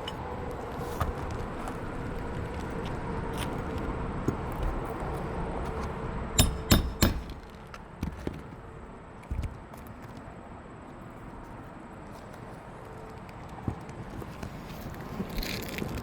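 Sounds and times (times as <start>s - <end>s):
steady hum: 0.0s - 9.2s.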